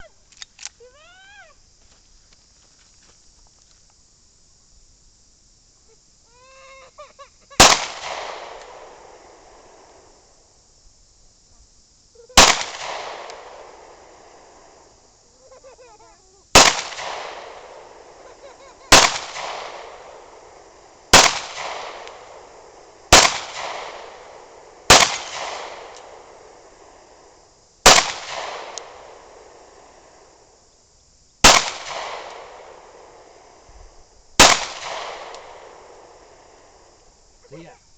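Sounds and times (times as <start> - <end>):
loud sharp bangs with echo: 21.1 - 22.1.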